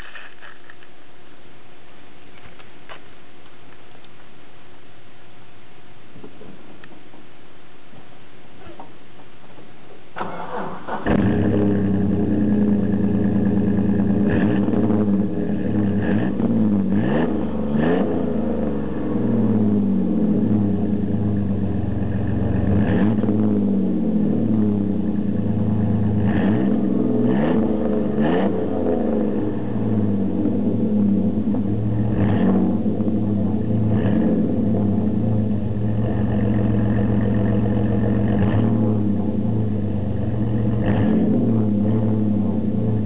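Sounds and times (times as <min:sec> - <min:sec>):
engine idling and revving: 0:10.2 - 0:43.0.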